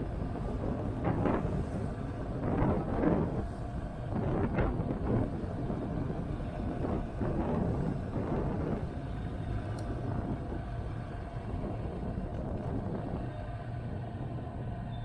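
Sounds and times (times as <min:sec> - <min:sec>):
wind on microphone: 0:00.0 - 0:14.9
motorcycle engine running: 0:00.0 - 0:15.0.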